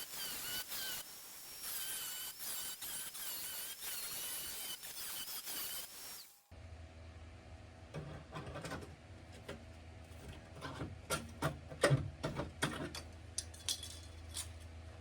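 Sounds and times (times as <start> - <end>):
power cutting tool whining: 0.0 - 6.4.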